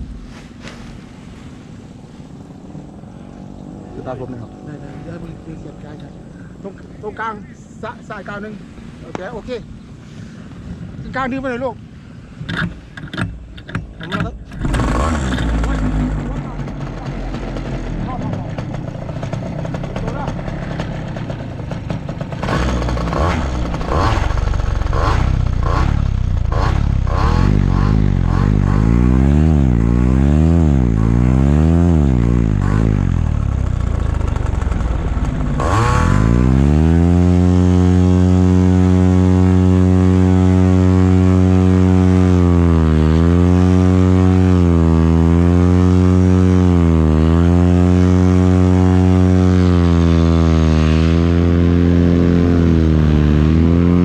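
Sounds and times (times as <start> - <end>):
paramotor engine revving: 14.5 - 54.0.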